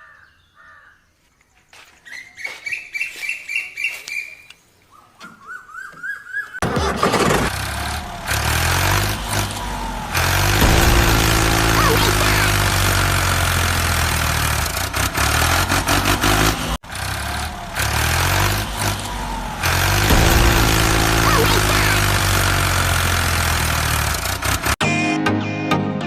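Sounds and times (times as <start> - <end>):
engine starting and running: 6.6 - 24.8.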